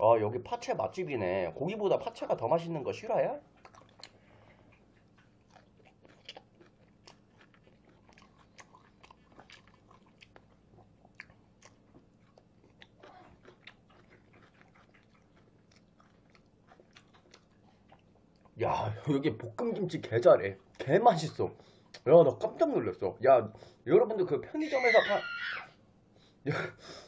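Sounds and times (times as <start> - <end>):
person chewing: 3.4 - 18.6.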